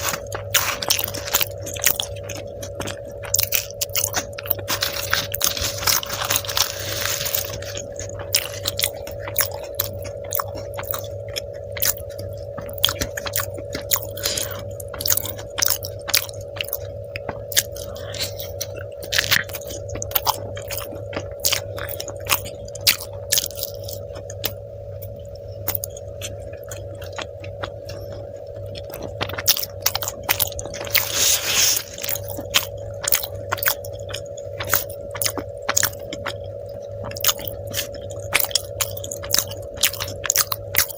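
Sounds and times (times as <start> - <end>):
chewing and biting food: 0.0 - 40.9
steady hum: 0.0 - 40.9.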